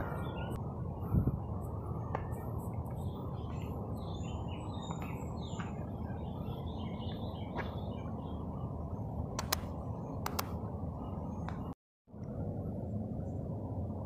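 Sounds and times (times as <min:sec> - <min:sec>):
birds chirping: 0:00.0 - 0:11.7
low outdoor background noise: 0:00.0 - 0:14.0
sharp clicks: 0:09.4 - 0:10.6.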